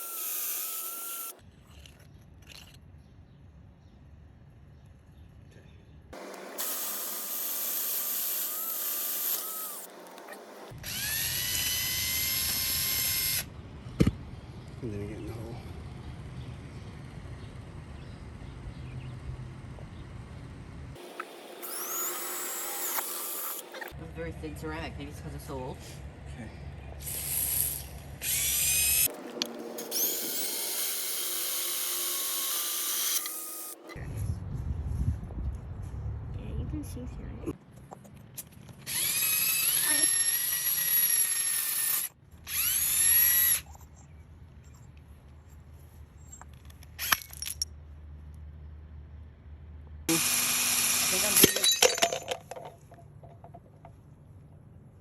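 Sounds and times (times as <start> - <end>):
power drill grinding into ceramic: 0.0 - 2.8, 6.2 - 13.4, 21.0 - 24.0, 27.0 - 34.0, 38.8 - 43.7, 50.1 - 52.8.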